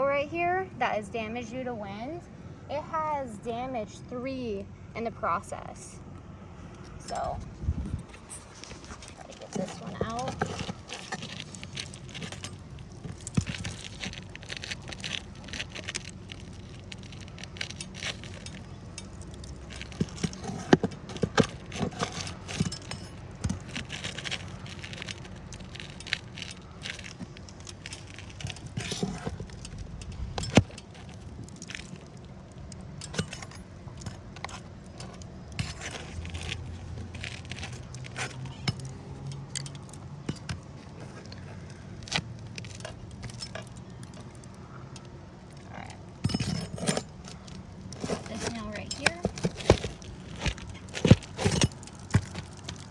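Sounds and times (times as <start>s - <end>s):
metal tool scraping shingles: 8.1s - 32.2s, 46.2s - 52.9s.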